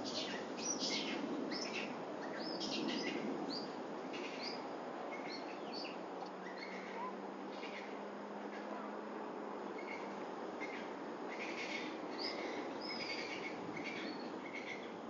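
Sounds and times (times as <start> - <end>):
outdoor background rush: 0.0 - 15.0
birds chirping: 9.8 - 15.0.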